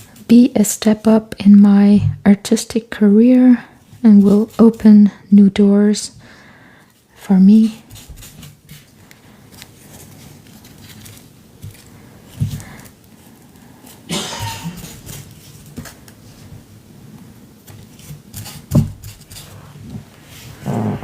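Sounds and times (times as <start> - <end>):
paper rustling and crinkling: 8.2 - 14.0.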